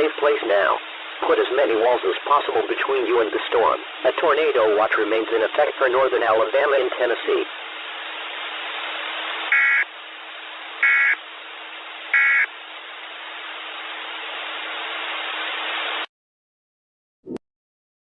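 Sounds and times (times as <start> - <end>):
radio hiss: 0.0 - 16.1
data-tone chirps: 9.5 - 9.8, 10.8 - 11.2, 12.2 - 12.5.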